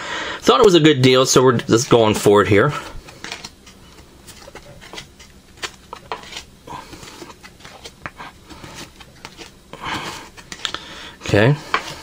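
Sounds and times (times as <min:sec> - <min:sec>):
cards clicking and rustling: 0:02.9 - 0:12.0.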